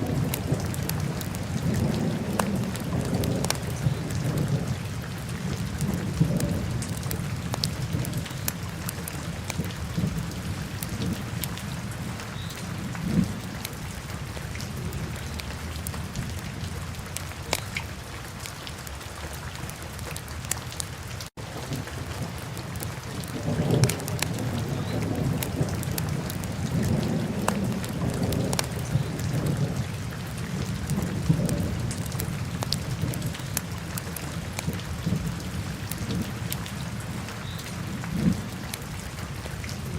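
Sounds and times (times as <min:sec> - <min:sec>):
fire crackling and popping: 0:00.0 - 0:04.7, 0:05.5 - 0:11.6, 0:17.1 - 0:17.9, 0:19.9 - 0:36.8
low rumble of flames: 0:00.0 - 0:12.1, 0:21.4 - 0:37.2.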